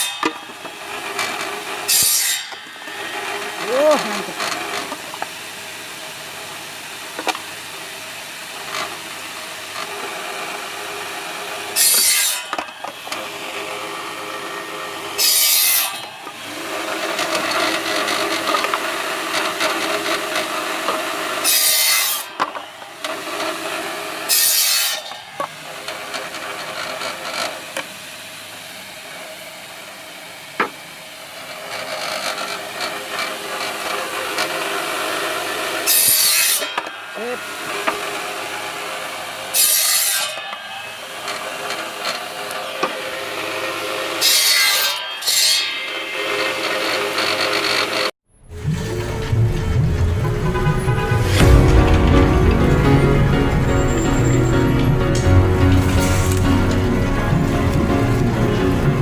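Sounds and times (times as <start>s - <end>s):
loud bursts of machine noise: 0.5s - 39.6s
skewer machine running: 46.4s - 59.0s.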